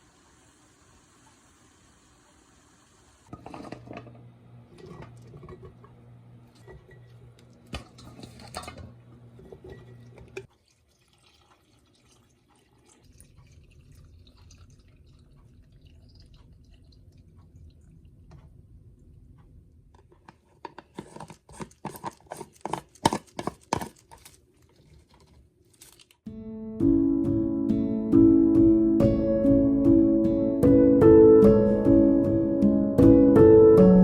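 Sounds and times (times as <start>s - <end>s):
water running: 9.8s - 18.2s.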